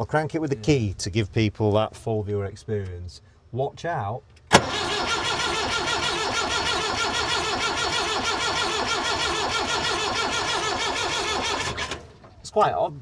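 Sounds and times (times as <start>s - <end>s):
starter motor cranking diesel engine: 4.5s - 12.4s.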